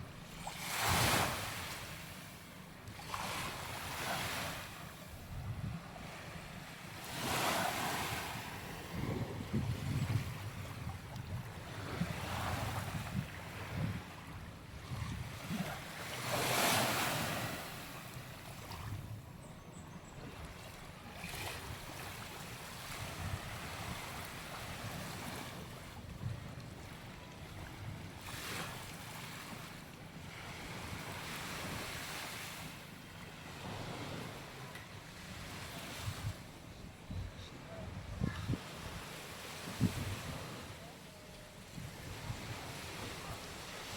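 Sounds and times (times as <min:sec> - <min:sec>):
sea waves breaking on beach: 0:00.4 - 0:02.4
wind buffeting microphone: 0:08.0 - 0:15.6, 0:36.0 - 0:39.0.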